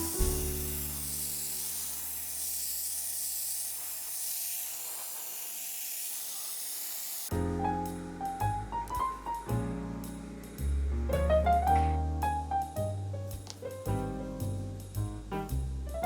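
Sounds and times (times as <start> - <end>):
background music: 0.0 - 1.4
paint spraying hiss: 0.0 - 15.1.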